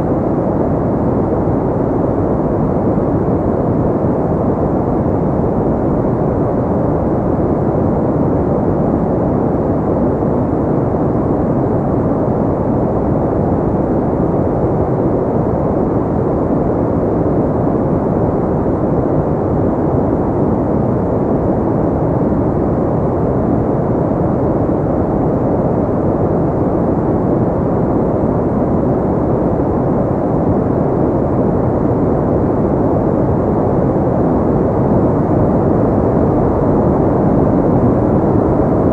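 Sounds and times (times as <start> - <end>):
muffled pink noise hiss: 0.0 - 38.9.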